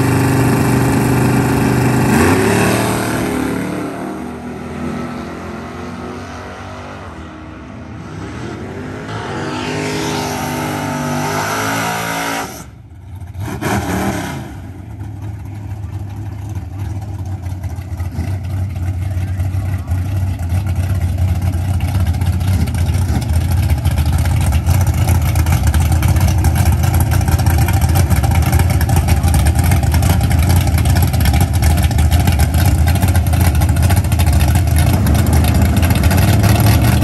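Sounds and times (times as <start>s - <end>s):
car engines idling: 0.0s - 2.5s, 14.6s - 37.0s
car engine revving and accelerating: 0.0s - 14.8s, 24.3s - 37.0s.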